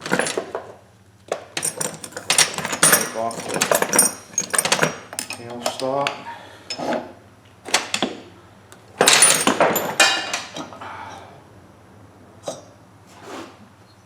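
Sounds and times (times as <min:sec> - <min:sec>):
metal lathe parts clanking: 0:00.0 - 0:00.6, 0:01.6 - 0:07.0, 0:09.0 - 0:10.6.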